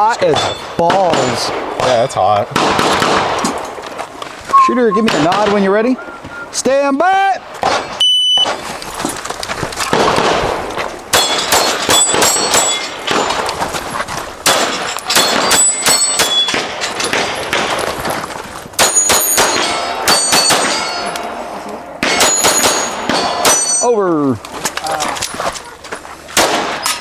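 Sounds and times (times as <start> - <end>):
steel targets ringing: 0.0 - 1.6, 4.5 - 5.7, 11.1 - 13.5, 14.5 - 17.8, 18.8 - 24.2
pistol shots: 0.3 - 3.8, 4.9 - 5.7, 9.9 - 13.5, 14.4 - 17.9, 18.8 - 21.4, 22.0 - 23.8, 26.4 - 27.0.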